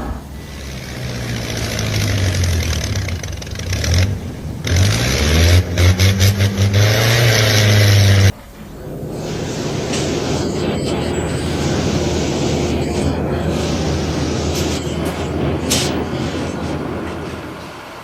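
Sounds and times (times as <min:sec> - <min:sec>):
heavy vehicle engine revving: 0:00.0 - 0:18.0.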